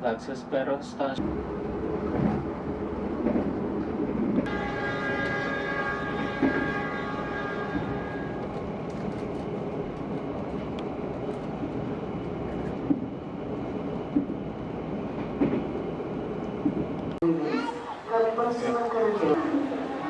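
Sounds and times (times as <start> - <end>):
train rumbling: 0.0 - 20.0
train clunks: 2.0 - 13.2, 15.1 - 15.8
train horn: 4.5 - 8.6.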